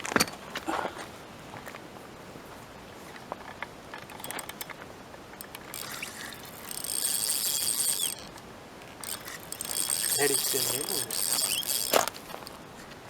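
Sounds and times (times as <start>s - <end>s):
fishing reel ratcheting: 4.0s - 4.8s, 5.4s - 12.5s.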